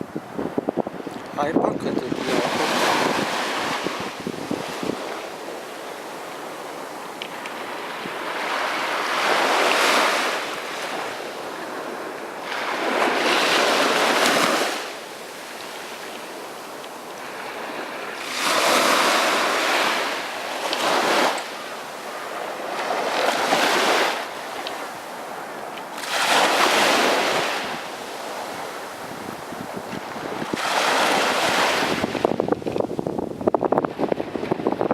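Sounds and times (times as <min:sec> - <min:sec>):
sea waves breaking on beach: 0:00.0 - 0:34.9.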